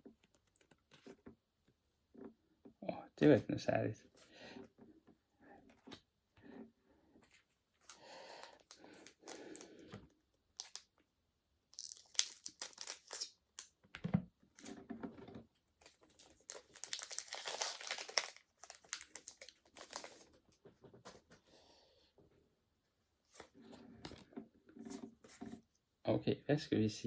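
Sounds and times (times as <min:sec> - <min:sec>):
foil wrapper tearing and crinkling: 0:10.6 - 0:10.9, 0:11.8 - 0:13.4, 0:15.8 - 0:20.3.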